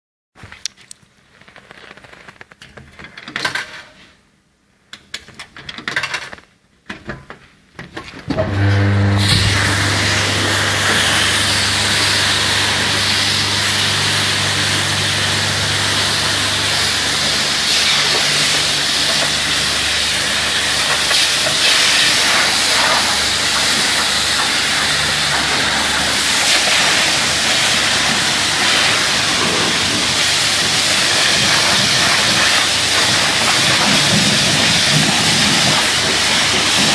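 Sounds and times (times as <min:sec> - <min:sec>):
pump motor hum: 0:08.3 - 0:36.9
water jet spraying: 0:08.5 - 0:36.9.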